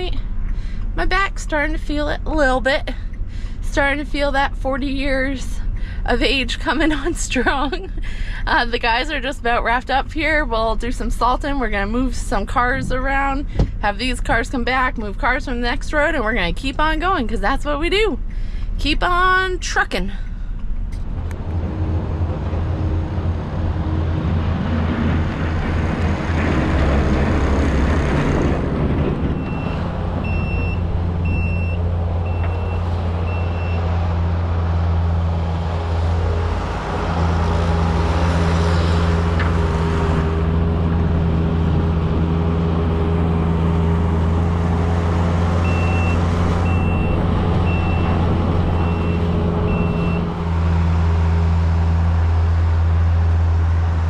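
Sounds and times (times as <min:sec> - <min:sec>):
vehicle engine running: 0:00.0 - 0:54.0
reversing alarm beeping: 0:29.4 - 0:33.9, 0:45.6 - 0:50.4.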